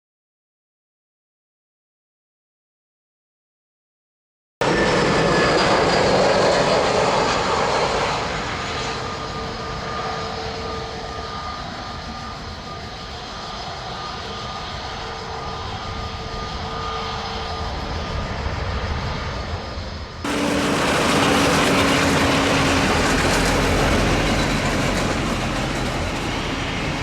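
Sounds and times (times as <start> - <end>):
jet engines running with whine: 4.6 - 27.0.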